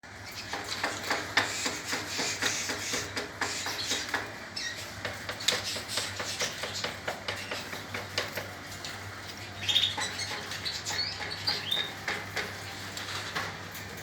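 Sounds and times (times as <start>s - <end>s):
birds fluttering in cage: 0.1s - 14.0s
bird chirps: 9.4s - 12.0s.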